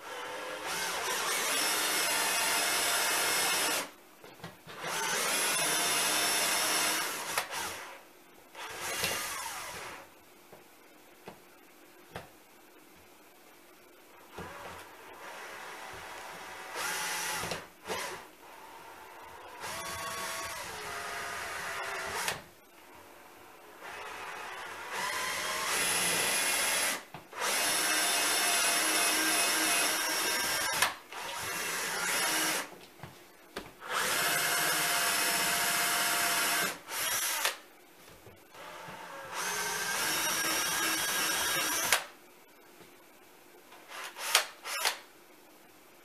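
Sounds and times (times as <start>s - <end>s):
electric drill boring into wood: 0.0s - 3.9s, 4.8s - 8.0s, 14.4s - 22.4s, 23.8s - 32.7s, 33.9s - 37.6s, 38.6s - 42.1s, 44.0s - 45.0s.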